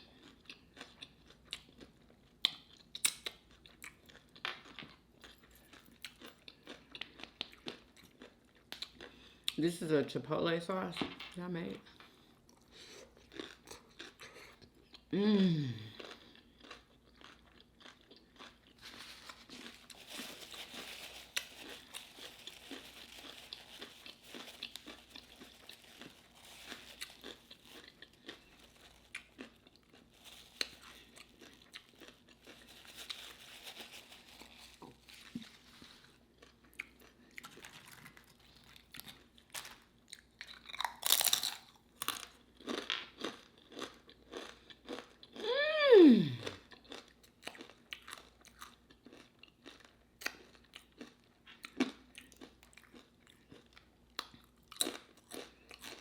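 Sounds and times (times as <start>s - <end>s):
chewing crisp food: 0.0s - 9.7s, 12.0s - 56.0s
mouth sounds: 45.4s - 46.6s.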